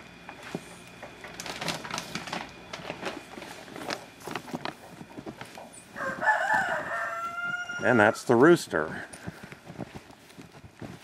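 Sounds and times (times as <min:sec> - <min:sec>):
footsteps crunching through snow: 0:03.1 - 0:11.0.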